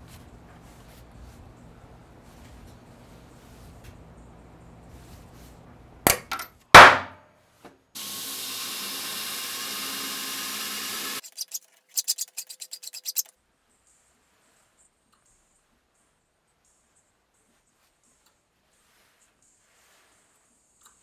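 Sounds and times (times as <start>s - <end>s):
sharp tool knocks: 6.1s - 7.1s
steady rubbing noise: 8.4s - 13.3s
quick run of clicks: 10.0s - 13.3s.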